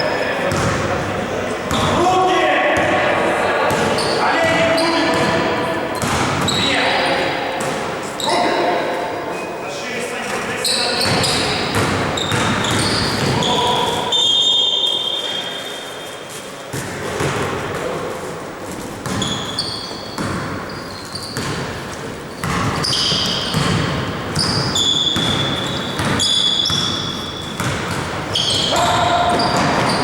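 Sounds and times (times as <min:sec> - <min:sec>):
sneakers squeaking: 0:00.0 - 0:02.0, 0:02.7 - 0:09.6, 0:10.2 - 0:30.0
players' voices: 0:00.0 - 0:15.8, 0:27.8 - 0:30.0
basketball bouncing on court: 0:00.4 - 0:00.9, 0:03.7 - 0:06.7, 0:07.5 - 0:08.0, 0:11.0 - 0:13.7, 0:16.7 - 0:17.6, 0:19.0 - 0:30.0.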